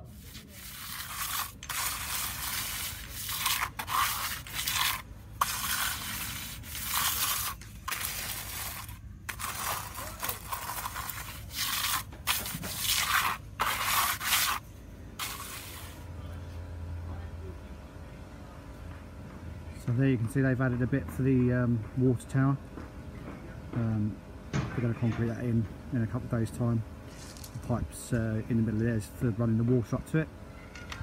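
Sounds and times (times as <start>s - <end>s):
trowel scraping wet concrete: 0.0s - 16.0s.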